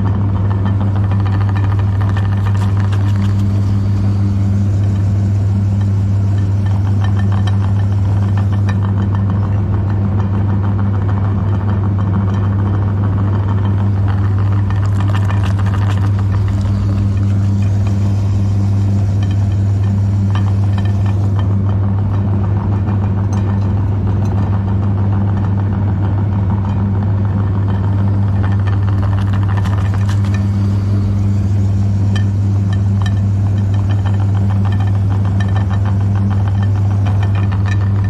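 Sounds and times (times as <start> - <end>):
electric meat grinder humming: 0.0 - 9.3, 13.7 - 22.7, 26.8 - 38.0
crackle of grinding cookies: 0.0 - 38.0.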